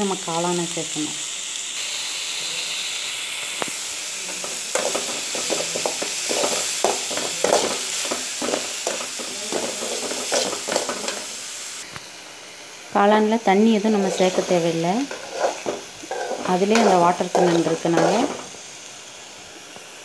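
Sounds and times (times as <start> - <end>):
food sizzling in hot oil: 0.0 - 20.0
steel spoon scraping a pan: 4.2 - 11.4, 13.8 - 18.6.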